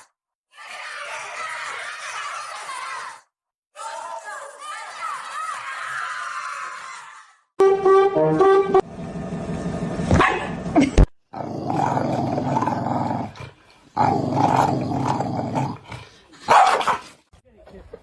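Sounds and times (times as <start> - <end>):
dog growling: 11.3 - 17.2.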